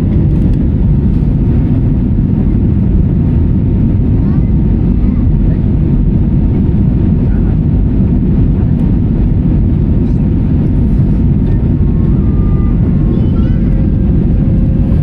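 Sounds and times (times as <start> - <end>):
airliner cabin roar: 0.0 - 15.0.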